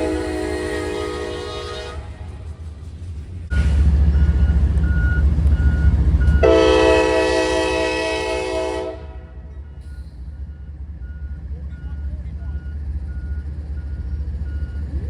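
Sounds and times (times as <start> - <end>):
locomotive air horn: 0.0 - 2.4, 6.4 - 9.5
train rumble: 0.0 - 15.0.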